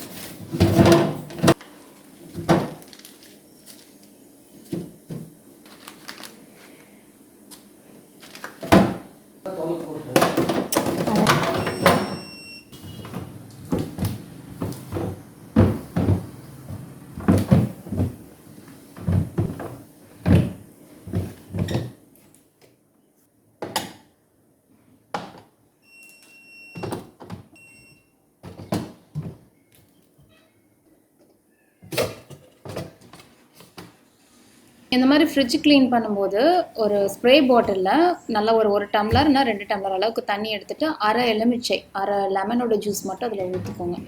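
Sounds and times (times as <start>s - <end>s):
containers and shelves clattering: 0.0s - 1.6s, 10.1s - 22.0s, 31.9s - 34.0s
short high beeps: 11.6s - 13.0s.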